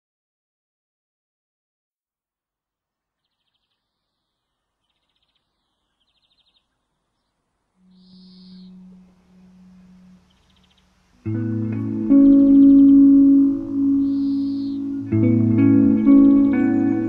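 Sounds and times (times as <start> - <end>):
buzzy pulsed bird calls: 3.3 - 17.0
low ambient drone music: 7.7 - 17.0.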